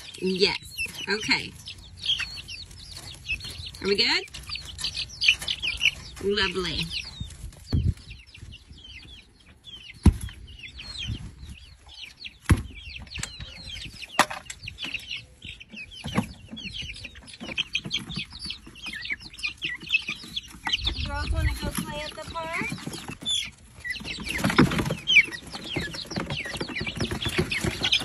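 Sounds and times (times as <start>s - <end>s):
chickens clucking and peeping: 0.0s - 28.0s.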